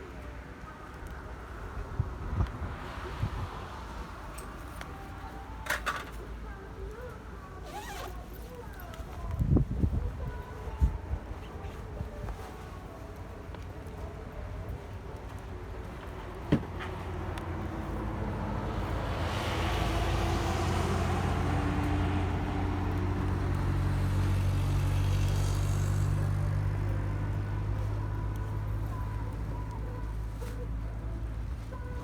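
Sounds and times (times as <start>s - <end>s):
vehicle engine passing: 16.9s - 29.7s.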